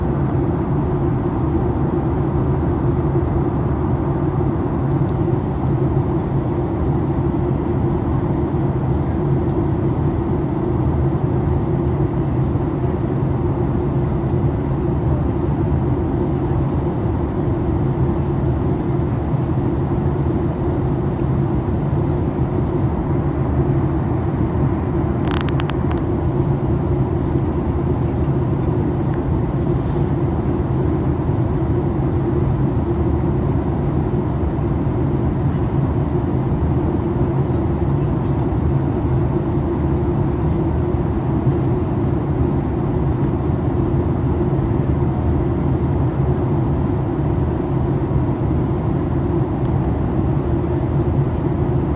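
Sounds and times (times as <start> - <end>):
jet engine hum: 0.0 - 51.9
small click: 21.2 - 21.4.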